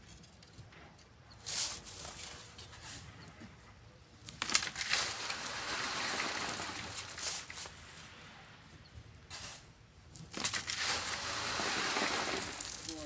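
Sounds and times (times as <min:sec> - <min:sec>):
shovel scraping sand: 0:01.4 - 0:03.1, 0:04.5 - 0:07.8, 0:09.3 - 0:09.7, 0:10.3 - 0:13.0
sand pouring hiss: 0:04.8 - 0:08.2, 0:09.3 - 0:09.7, 0:10.6 - 0:13.0.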